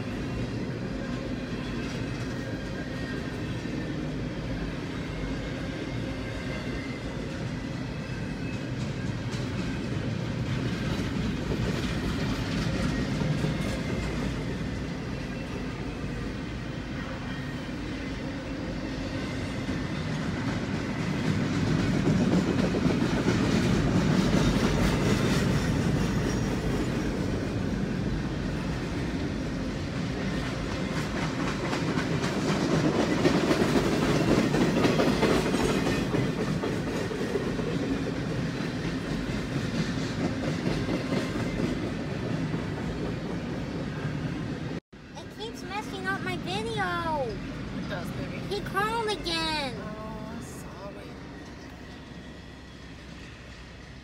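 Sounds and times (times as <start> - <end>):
freight train wheels clacking: 5.0 - 44.8.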